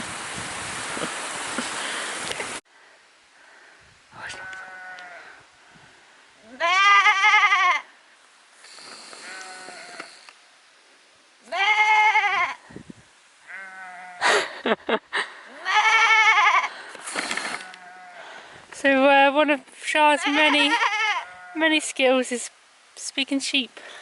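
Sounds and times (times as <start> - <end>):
sheep bleating: 4.3 - 5.3, 6.4 - 7.9, 9.2 - 10.1, 11.4 - 12.6, 13.4 - 14.4, 15.5 - 16.7, 17.6 - 18.3, 20.1 - 21.7.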